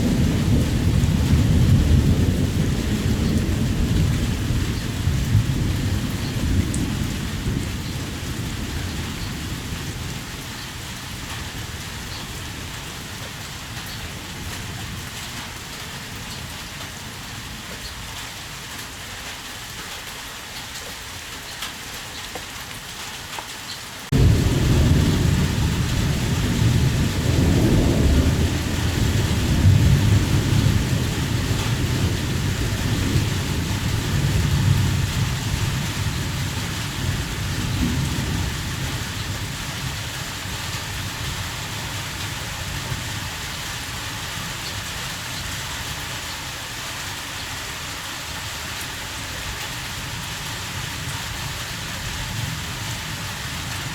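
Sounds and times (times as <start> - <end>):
thunder rumbling: 0.0 - 17.6, 24.1 - 44.1
heavy rain falling: 0.0 - 53.9.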